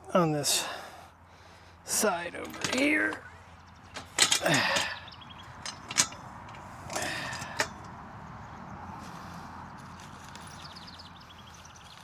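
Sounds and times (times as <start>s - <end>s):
metal parts clicking: 1.9s - 7.9s
metal scraping rattle: 1.9s - 8.0s
sharp metal clank: 3.9s - 5.0s, 5.6s - 7.9s.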